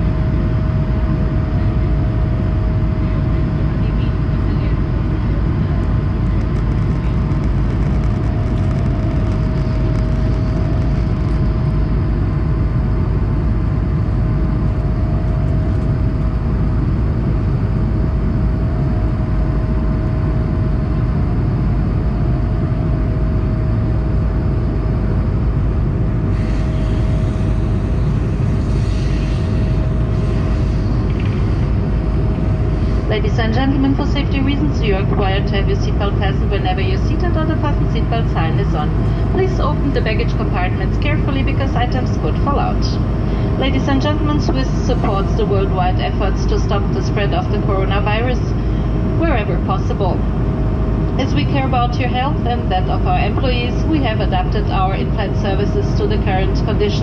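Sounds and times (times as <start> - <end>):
constant hum: 0.0 - 57.0
jet engines roaring: 0.0 - 57.0
airflow: 26.1 - 53.0.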